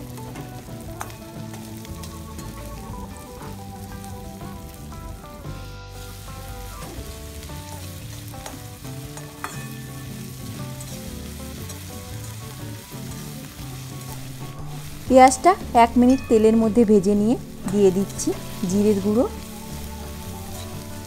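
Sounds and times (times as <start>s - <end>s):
onion sizzling in oil: 0.0s - 21.0s
spatula clinking on pan: 8.4s - 12.4s.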